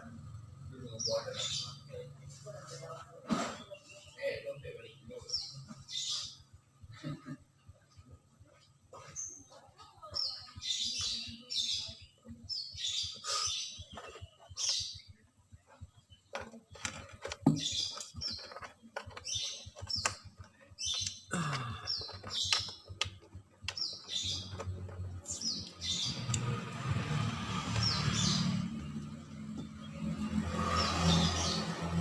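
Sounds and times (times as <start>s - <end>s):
birds chirping: 0.0s - 32.0s
sharp clicks and knocks: 16.2s - 26.6s.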